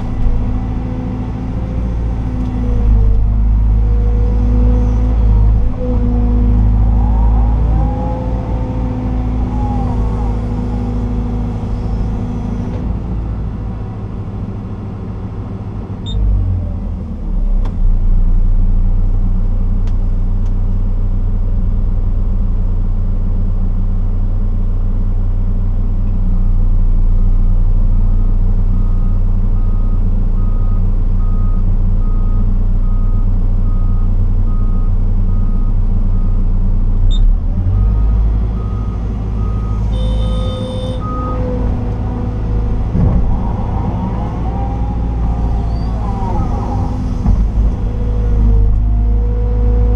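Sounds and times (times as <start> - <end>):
excavator diesel engine running: 20.7 - 49.9
reversing alarm beeping: 38.0 - 41.5.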